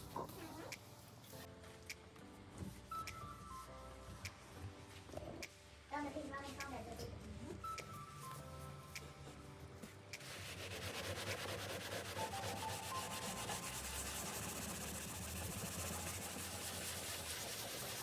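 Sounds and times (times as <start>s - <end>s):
rapid rubbing or scraping strokes: 10.1s - 18.0s.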